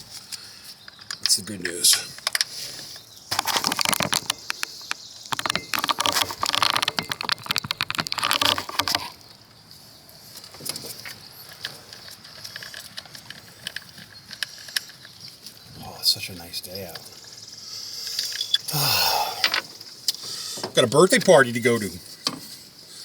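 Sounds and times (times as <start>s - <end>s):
metallic clicking and rattling: 3.3s - 9.2s, 10.5s - 15.6s.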